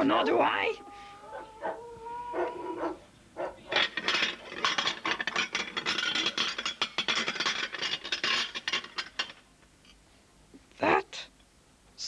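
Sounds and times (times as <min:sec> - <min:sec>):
rapid clattering rattle: 0:03.4 - 0:09.5.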